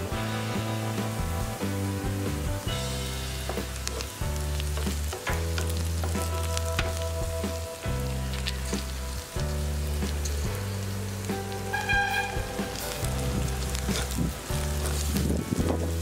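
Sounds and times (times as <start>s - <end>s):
onions sizzling in hot oil: 0.0s - 16.0s
crackling pops: 3.4s - 16.0s
wooden spatula stirring: 10.0s - 15.3s.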